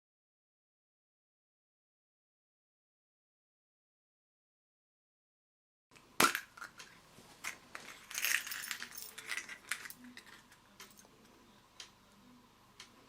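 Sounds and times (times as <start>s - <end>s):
small hard objects clicking and rattling: 6.2s - 11.1s.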